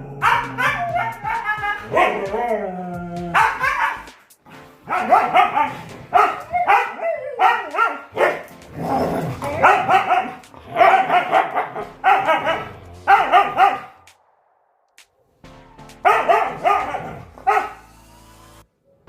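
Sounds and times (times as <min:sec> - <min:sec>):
dog barking and yipping: 0:00.0 - 0:14.2, 0:15.9 - 0:18.0.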